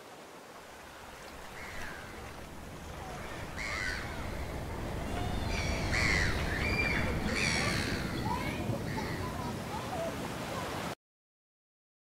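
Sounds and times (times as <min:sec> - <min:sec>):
low steady rushing: 0:00.8 - 0:09.5
birds calling: 0:00.8 - 0:09.6.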